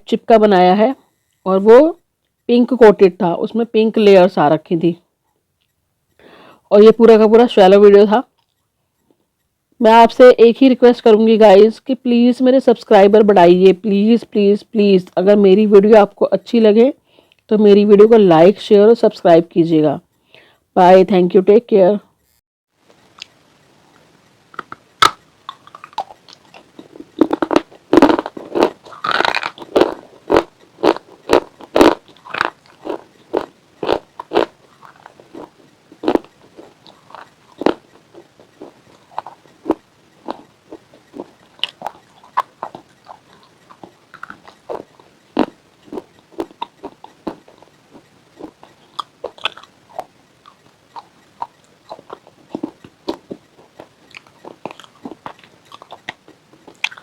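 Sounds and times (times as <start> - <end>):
chips crunching in mouth: 24.6 - 57.0.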